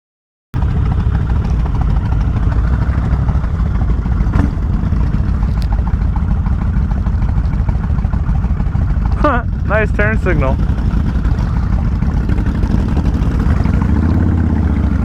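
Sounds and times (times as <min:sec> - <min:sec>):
motorcycle engine running: 0:00.6 - 0:15.0
wind rumble: 0:00.6 - 0:15.0.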